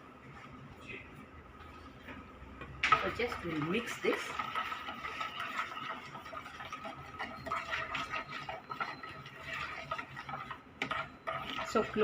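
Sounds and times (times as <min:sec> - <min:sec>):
spoon clinking and scraping container: 0:03.6 - 0:12.0.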